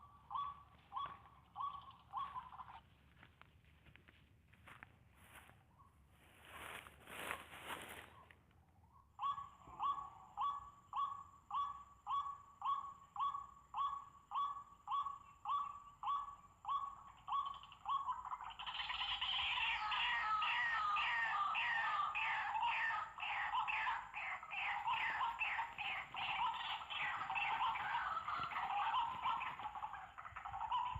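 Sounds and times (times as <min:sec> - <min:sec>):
bird harsh calls: 0:00.0 - 0:02.8, 0:09.1 - 0:30.9.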